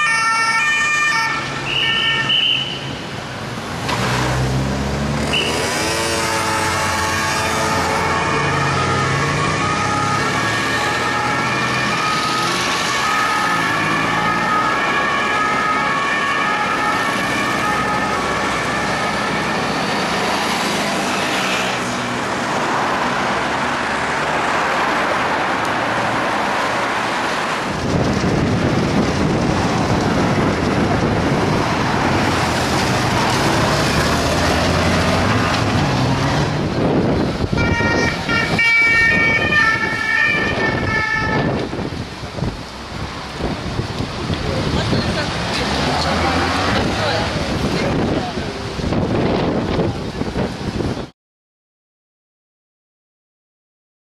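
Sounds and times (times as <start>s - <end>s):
two-tone police siren: 0.0s - 2.6s, 6.3s - 20.4s, 37.5s - 41.7s
engine and road noise: 0.0s - 51.1s.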